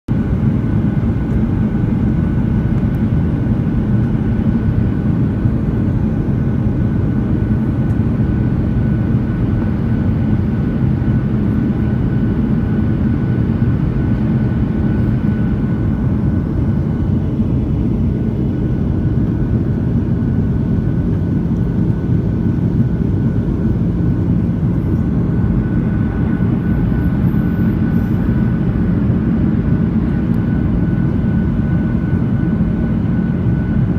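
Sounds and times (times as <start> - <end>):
aircraft cabin engine roar: 0.1 - 33.9.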